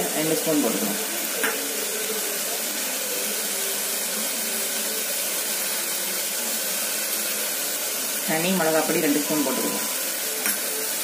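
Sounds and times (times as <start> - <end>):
masala sizzling in oil: 0.0 - 11.0.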